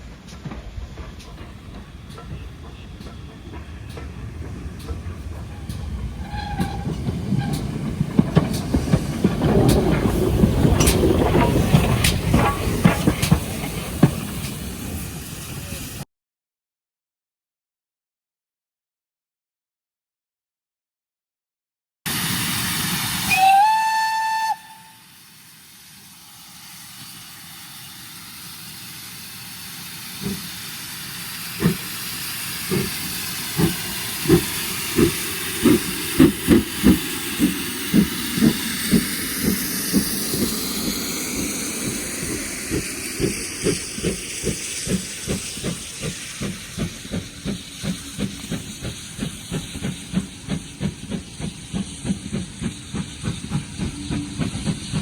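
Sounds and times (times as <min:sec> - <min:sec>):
steam exhaust beats: 0:00.0 - 0:16.0, 0:22.1 - 0:55.0
steam hissing: 0:00.0 - 0:16.0, 0:22.1 - 0:55.0
steam whistle: 0:23.2 - 0:25.2.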